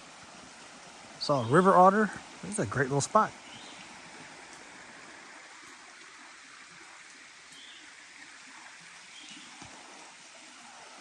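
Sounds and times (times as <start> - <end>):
stream flowing: 0.0 - 11.0
bird chirps: 3.4 - 3.8.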